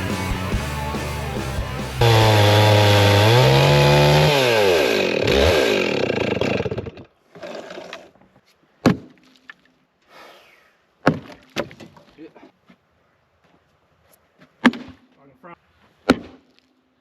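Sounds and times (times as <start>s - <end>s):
chainsaw revving: 0.6s - 8.1s.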